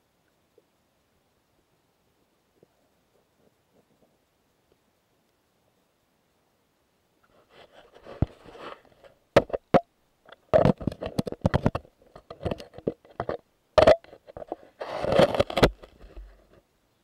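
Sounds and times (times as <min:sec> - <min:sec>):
underwater clicks and knocks: 0:09.4 - 0:16.0.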